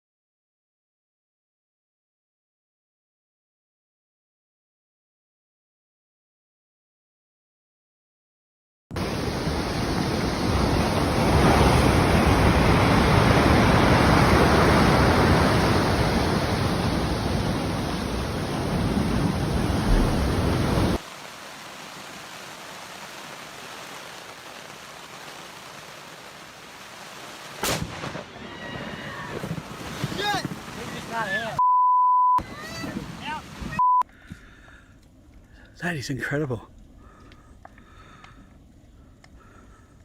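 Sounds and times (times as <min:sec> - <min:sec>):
loud rushing noise: 0:19.5 - 0:21.0.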